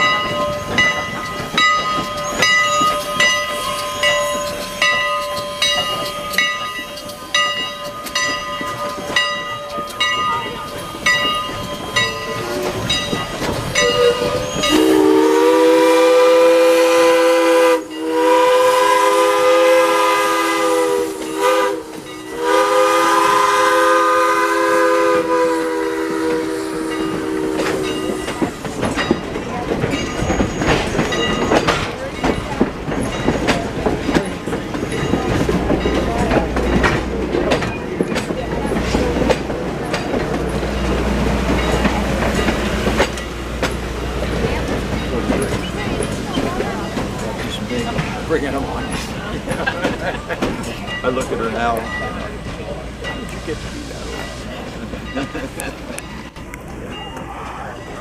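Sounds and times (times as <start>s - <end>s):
locomotive bell ringing: 0.0s - 58.0s
steam whistle chord: 13.8s - 28.2s.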